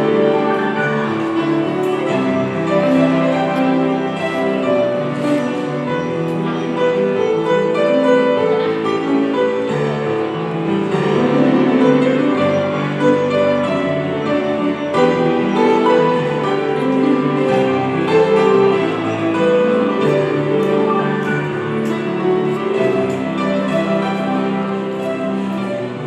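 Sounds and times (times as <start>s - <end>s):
slow piano melody: 0.0s - 26.0s.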